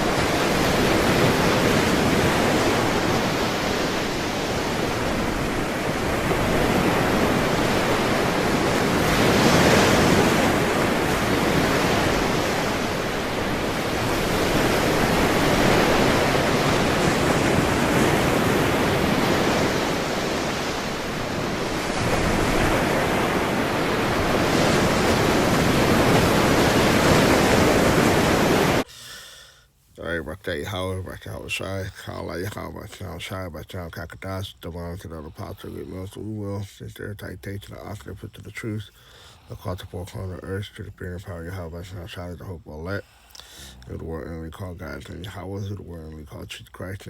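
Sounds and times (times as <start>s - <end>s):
ocean waves washing in: 0.0s - 28.9s.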